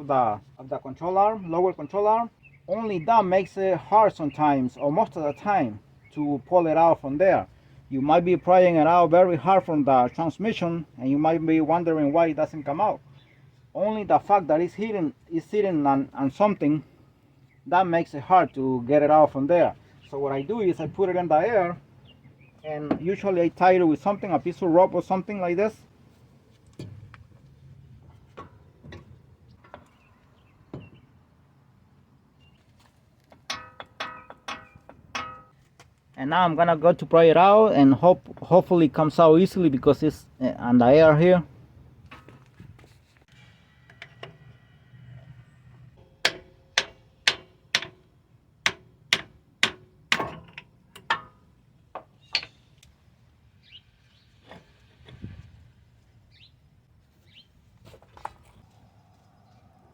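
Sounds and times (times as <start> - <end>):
steel tools knocking metal: 33.4 - 35.6.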